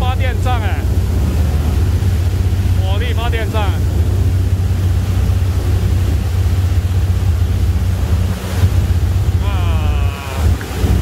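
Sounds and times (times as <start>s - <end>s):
ferry engine: 0.0s - 11.0s
water wash: 0.0s - 11.0s
wind on microphone: 0.8s - 11.0s
person speaking: 9.4s - 10.7s.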